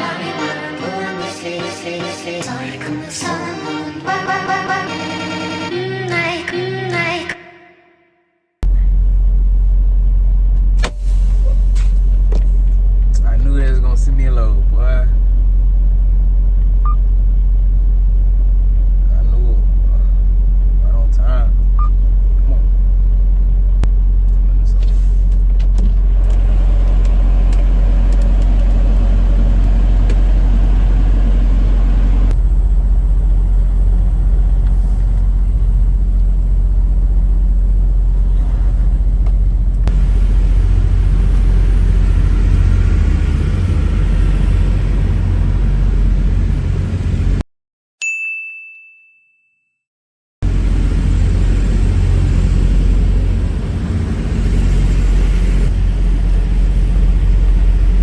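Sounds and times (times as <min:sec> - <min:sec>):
semi truck rumble: 0:08.6 - 0:47.4, 0:50.4 - 0:58.0
clear ding: 0:48.0 - 0:49.8.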